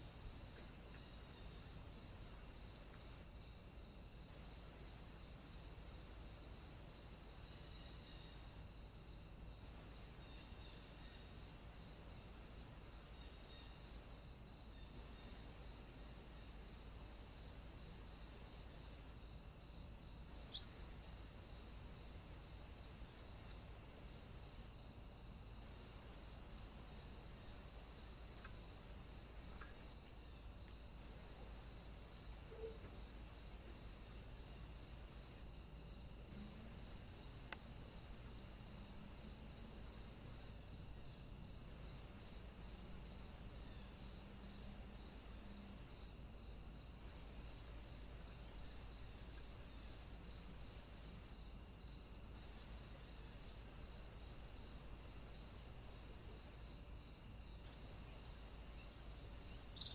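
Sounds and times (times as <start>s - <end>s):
faint ticks: 28.3s - 28.7s, 29.5s - 29.9s, 36.4s - 37.9s.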